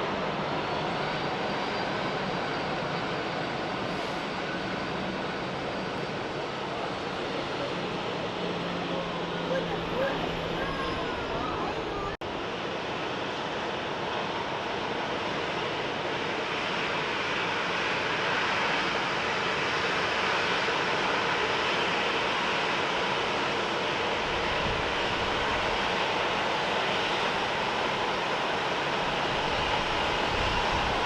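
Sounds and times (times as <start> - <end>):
jet engines roaring: 0.0 - 31.0.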